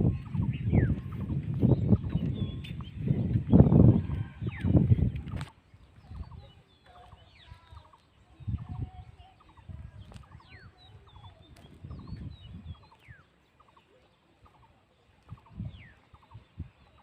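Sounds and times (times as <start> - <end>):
low rumbling thumps: 0.0 - 5.4
birds chirping: 0.0 - 17.0.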